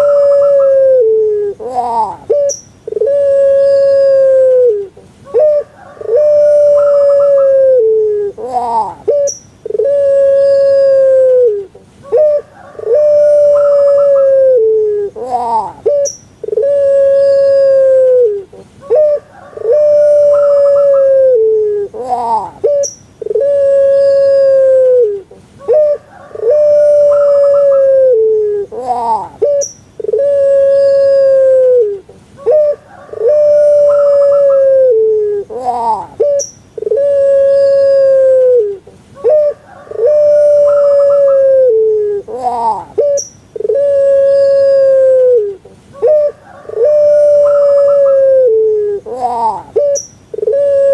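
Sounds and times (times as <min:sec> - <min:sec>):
dove cooing: 0:00.0 - 0:50.9.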